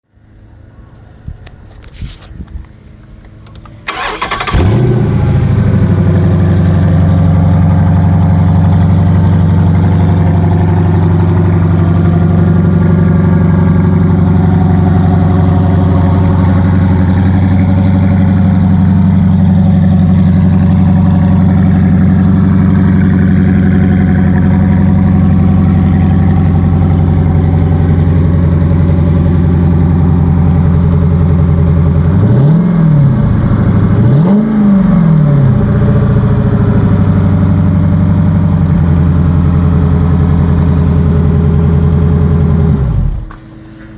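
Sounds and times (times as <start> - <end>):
engine idling: 0.1 - 43.9
engine cranking and starting: 3.4 - 5.6.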